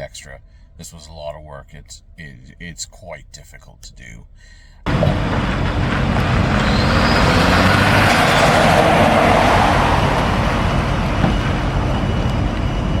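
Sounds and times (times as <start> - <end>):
vehicle road noise: 4.3 - 13.0.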